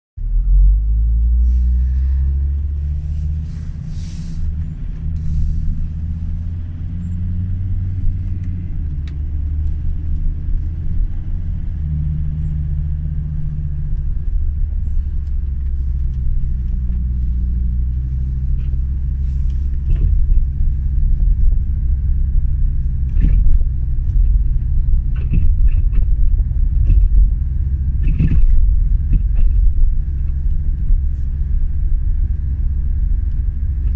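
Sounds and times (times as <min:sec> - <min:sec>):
low car rumble: 0:00.2 - 0:33.9
knocks and squeaks from axle: 0:06.9 - 0:07.5, 0:25.0 - 0:26.2.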